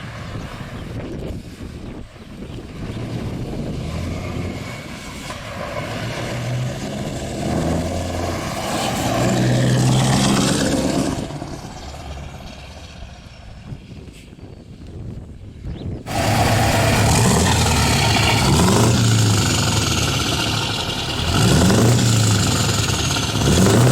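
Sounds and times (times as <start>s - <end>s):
truck engine driving by: 2.6s - 13.9s, 16.1s - 23.9s.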